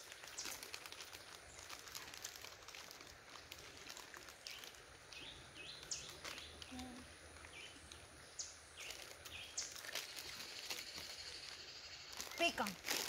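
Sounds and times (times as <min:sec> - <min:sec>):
small bird chirping: 0:04.4 - 0:12.8.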